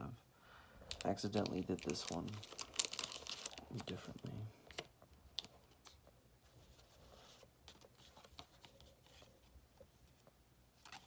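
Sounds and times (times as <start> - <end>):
trading cards clicking and rustling: 0.9 - 6.0.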